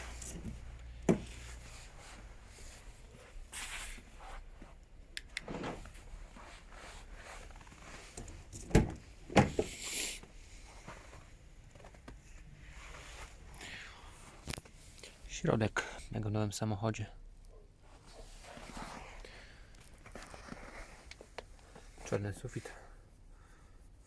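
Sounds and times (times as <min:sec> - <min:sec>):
rustling and shuffling: 0:00.0 - 0:15.6, 0:17.7 - 0:24.0
car door clunks: 0:01.0 - 0:01.3, 0:08.2 - 0:09.7.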